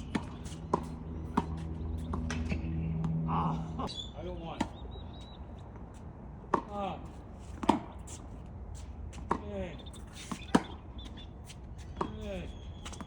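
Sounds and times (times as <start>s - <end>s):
tennis ball struck and bouncing: 0.0s - 3.4s, 7.6s - 8.0s, 10.4s - 10.8s.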